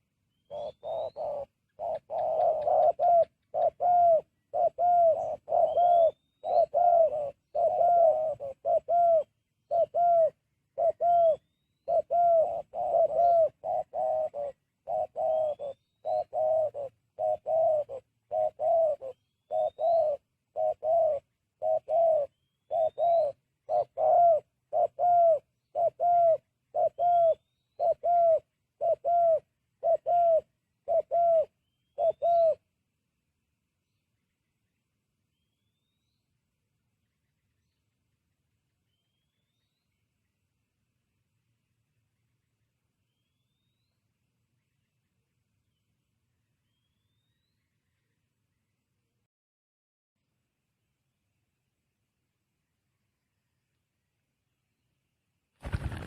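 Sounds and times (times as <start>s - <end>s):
dove cooing: 0.0s - 32.6s, 55.6s - 56.0s.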